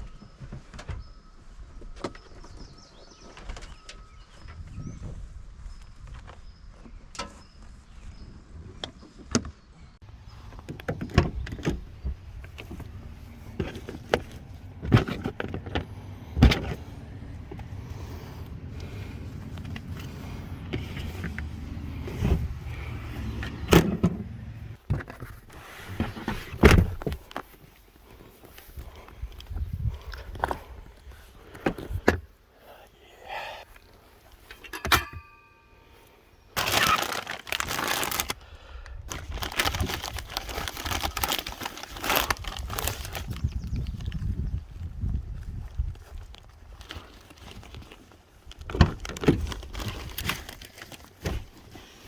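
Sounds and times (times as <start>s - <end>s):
truck engine rumble: 10.1s - 24.8s.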